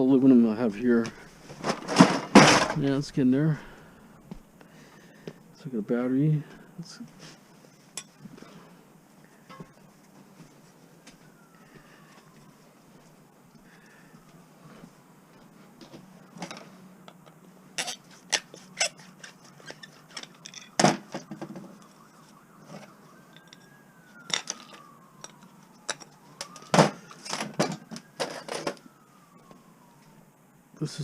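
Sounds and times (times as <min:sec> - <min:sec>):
faint falling and rising tone: 0:05.5 - 0:18.3, 0:18.9 - 0:31.0
scrap metal clinking and clanking: 0:16.4 - 0:21.4, 0:22.8 - 0:28.8.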